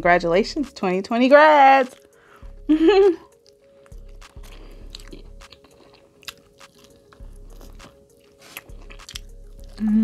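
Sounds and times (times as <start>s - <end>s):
wet smacking: 3.3s - 9.8s
crunching and chewing chicken wing: 3.3s - 10.0s
person humming: 9.7s - 10.0s.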